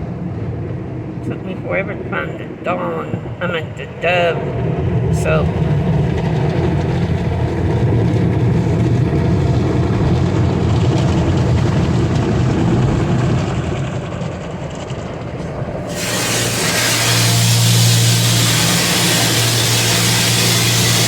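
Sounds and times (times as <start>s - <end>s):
car wash machinery rumbling: 0.0s - 21.0s
loud steady hiss: 15.9s - 21.0s.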